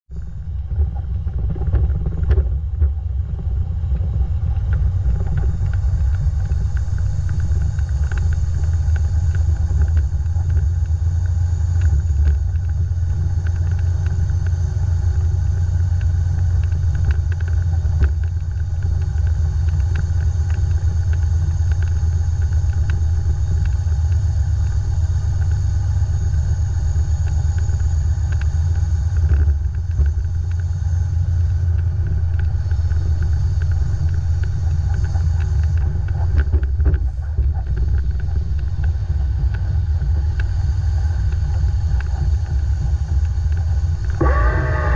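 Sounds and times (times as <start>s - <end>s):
diesel truck engine rumbling: 43.5s - 44.9s.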